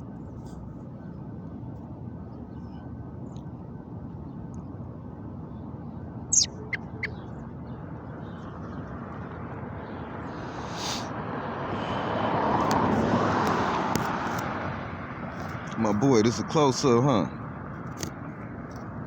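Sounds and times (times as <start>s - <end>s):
traffic noise: 0.0s - 19.0s
short high sharp chirps: 6.3s - 7.1s, 10.4s - 11.1s
vehicle passing: 6.3s - 7.3s, 9.0s - 15.6s.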